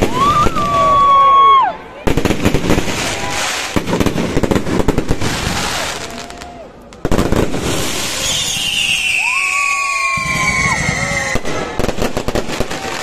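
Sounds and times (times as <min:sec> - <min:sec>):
falling firework whistle: 0:00.0 - 0:01.7, 0:07.7 - 0:11.9
fireworks crackling: 0:00.0 - 0:13.0.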